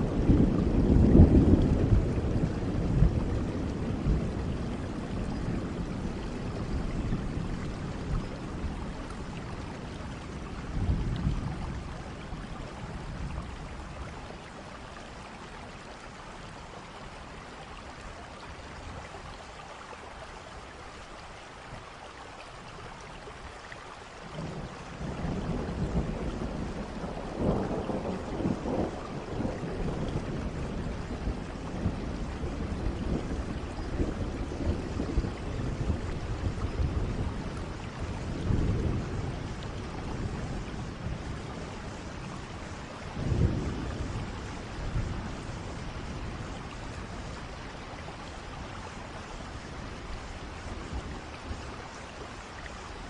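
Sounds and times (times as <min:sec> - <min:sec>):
rolling thunder: 0:00.0 - 0:14.2, 0:24.4 - 0:52.3
steady rain: 0:00.0 - 0:53.0.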